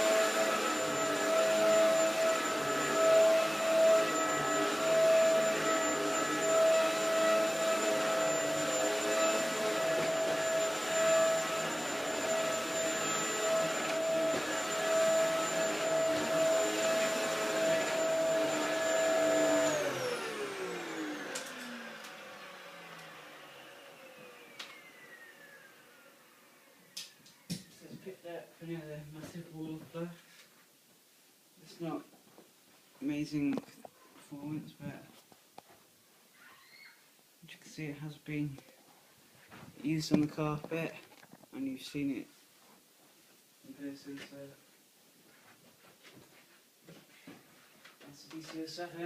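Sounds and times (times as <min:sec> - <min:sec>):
vacuum motor winding down: 0:00.0 - 0:27.0
vacuum cleaner whining: 0:00.0 - 0:28.2.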